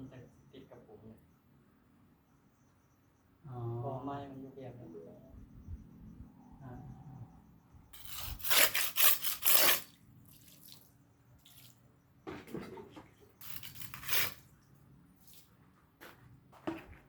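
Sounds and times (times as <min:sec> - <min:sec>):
hand tool scraping hard surface: 0:08.0 - 0:09.9, 0:13.4 - 0:14.4.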